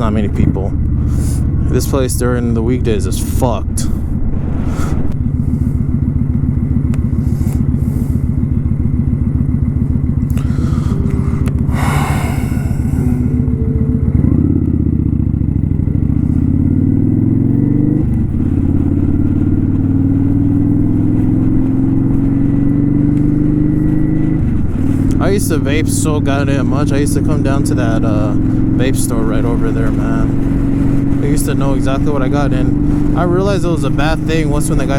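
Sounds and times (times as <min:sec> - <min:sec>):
motorcycle engine running: 0:00.0 - 0:34.9
rush of noise: 0:03.6 - 0:08.8, 0:09.8 - 0:15.5.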